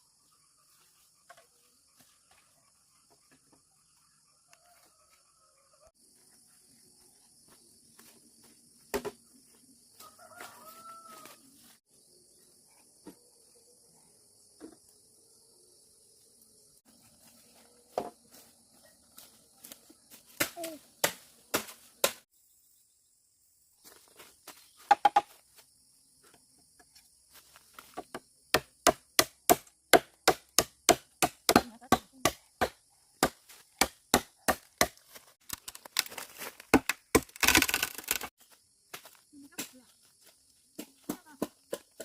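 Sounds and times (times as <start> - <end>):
tool striking wood: 24.9 - 25.3, 28.1 - 35.0.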